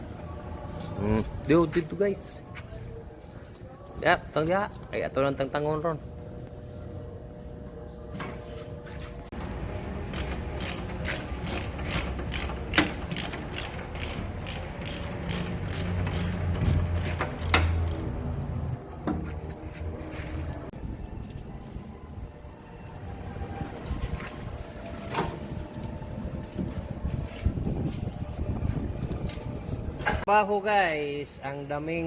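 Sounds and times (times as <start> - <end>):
ratchet wrench clicking: 10.1 - 18.4.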